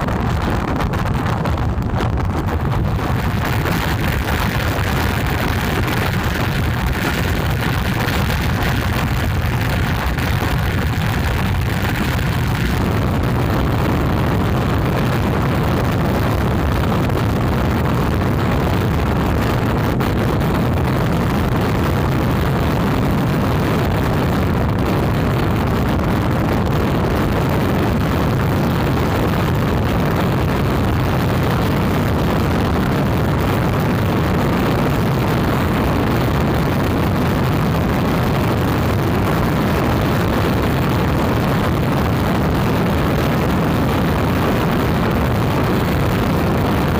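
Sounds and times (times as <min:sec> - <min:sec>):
strong wind buffeting microphone: 0:00.0 - 0:46.9.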